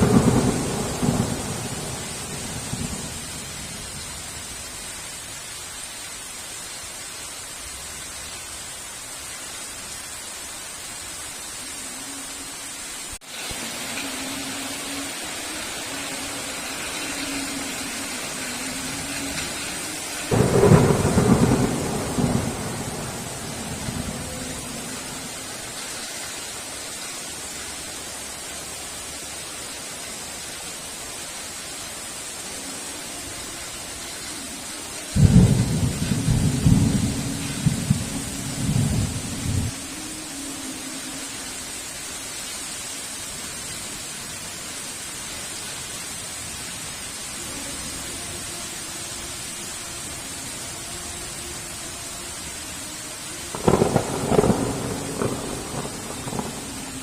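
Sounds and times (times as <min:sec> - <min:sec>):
loud thunderclap rumbling: 0:00.0 - 0:04.0, 0:20.3 - 0:25.4, 0:35.2 - 0:39.7, 0:53.5 - 0:57.0
heavy rain falling: 0:00.0 - 0:57.0
loud thunder clap: 0:53.6 - 0:56.6.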